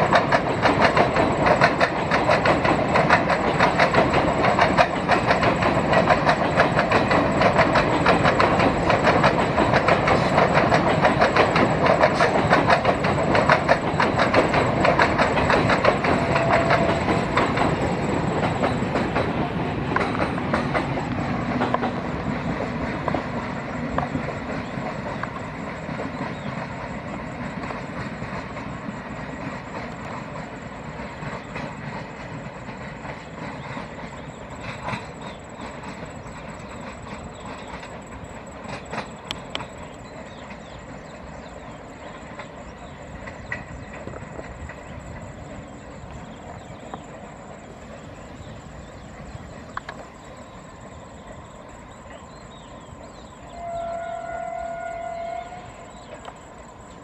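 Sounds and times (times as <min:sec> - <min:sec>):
train wheels clicking on rail joints: 0:00.0 - 0:57.0
train horn: 0:16.1 - 0:17.2, 0:53.4 - 0:56.3.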